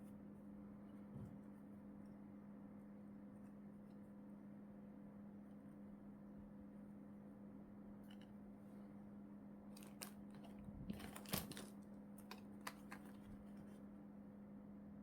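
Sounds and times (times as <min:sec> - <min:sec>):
low steady hum: 0:00.0 - 0:15.0
plastic packaging crinkling: 0:09.8 - 0:13.7.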